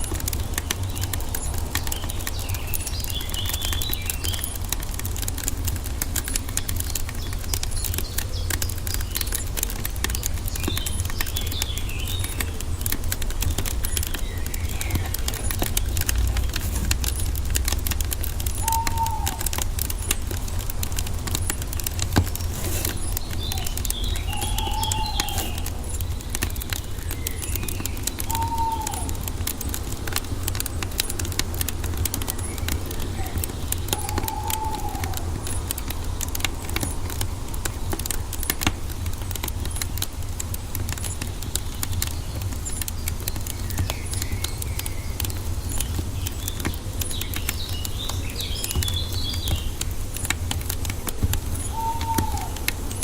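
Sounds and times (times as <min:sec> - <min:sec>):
birds whistling: 0:00.0 - 0:04.8, 0:06.2 - 0:17.7, 0:18.3 - 0:29.8, 0:32.2 - 0:37.0, 0:41.0 - 0:49.9, 0:51.4 - 0:53.0
wood fire crackling: 0:00.0 - 0:53.0
high twittering chirps: 0:06.2 - 0:29.3.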